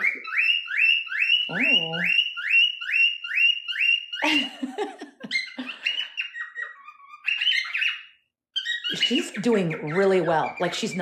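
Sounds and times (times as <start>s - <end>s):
cockatiels chirping: 0.0s - 4.6s, 5.2s - 11.0s.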